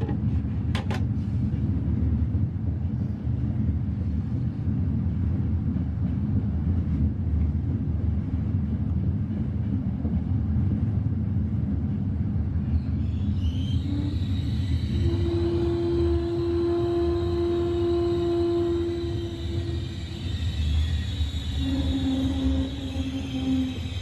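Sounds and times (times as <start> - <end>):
train rumbling from inside carriage: 0.0 - 24.0
faint high squeals: 12.7 - 24.0.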